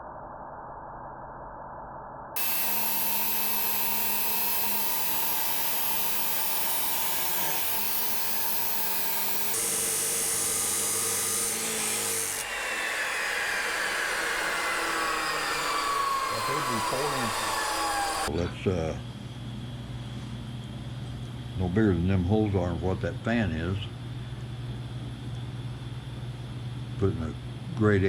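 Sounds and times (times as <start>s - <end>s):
cut-off wheel cutting steel: 2.4s - 18.3s.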